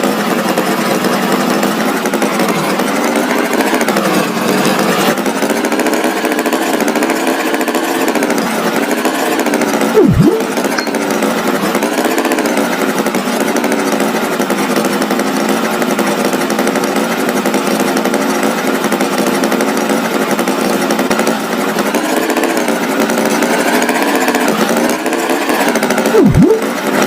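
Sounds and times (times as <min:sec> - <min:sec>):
cartoon small engine drone: 0:09.8 - 0:11.9, 0:24.1 - 0:27.0
swooping pitch glide: 0:10.0 - 0:11.1, 0:26.1 - 0:26.7.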